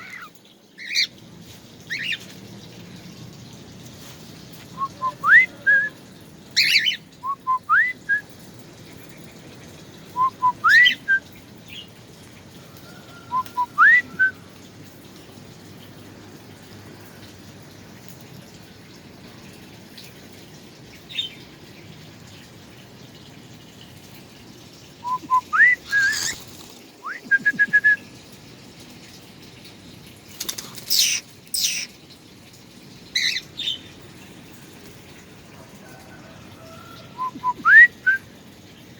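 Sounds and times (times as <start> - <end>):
bird whistling: 10.2 - 11.2, 25.0 - 26.4, 37.2 - 38.2
sharp high bird chirps: 30.9 - 31.9.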